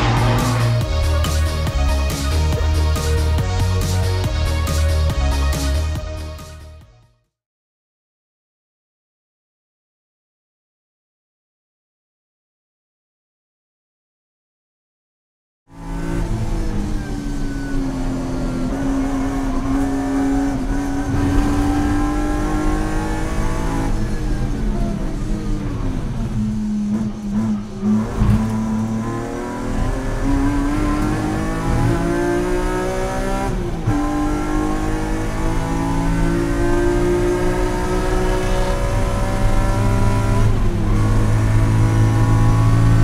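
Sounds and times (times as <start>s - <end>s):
car engine accelerating hard: 0.0s - 5.0s, 15.7s - 43.0s.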